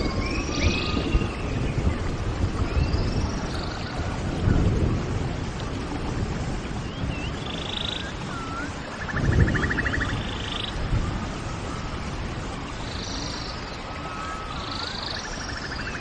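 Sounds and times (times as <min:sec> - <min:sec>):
steady low rumble: 0:00.0 - 0:16.0
birds chirping: 0:06.8 - 0:16.0.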